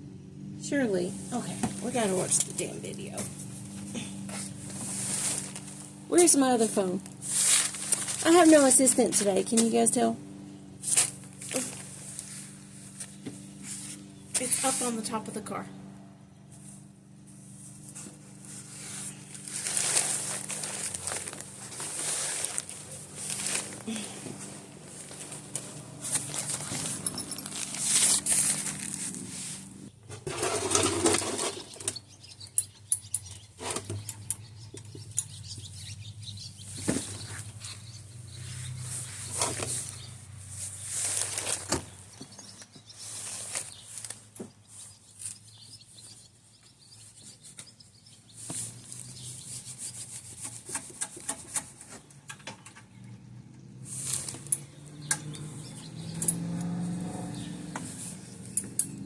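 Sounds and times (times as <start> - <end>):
hands rustling: 3.3 - 6.0, 7.1 - 9.9, 16.6 - 29.9.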